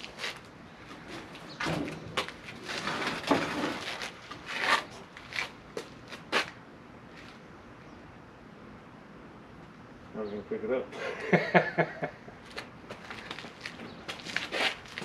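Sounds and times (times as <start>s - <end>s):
engine parts knocking and scraping: 0.0s - 6.5s.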